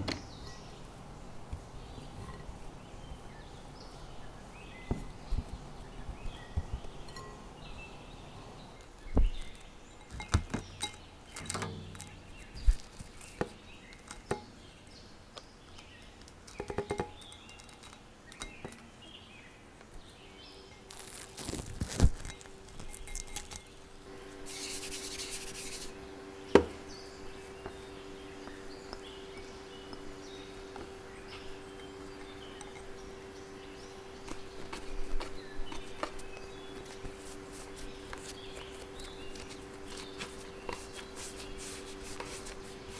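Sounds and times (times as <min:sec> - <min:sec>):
electric appliance hum: 0:22.1 - 0:42.9.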